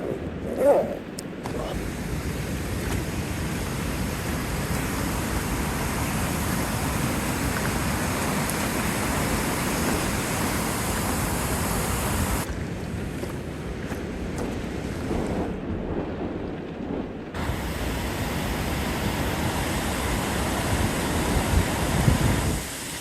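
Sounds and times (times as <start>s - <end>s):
waterfall rushing: 0.0s - 12.5s, 17.4s - 23.0s
wind buffeting microphone: 0.0s - 22.9s.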